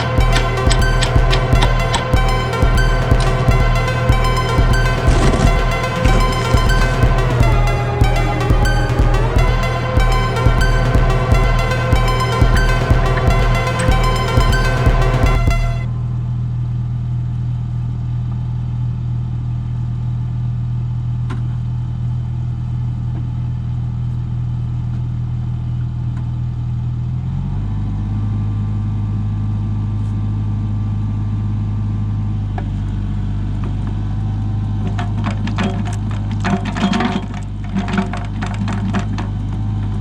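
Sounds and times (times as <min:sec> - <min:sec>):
excavator diesel engine running: 0:00.0 - 0:16.1.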